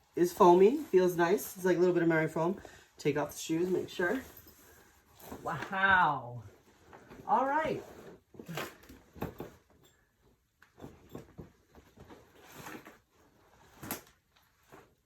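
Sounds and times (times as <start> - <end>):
soft knocks and rustles in a tent: 3.7 - 15.0.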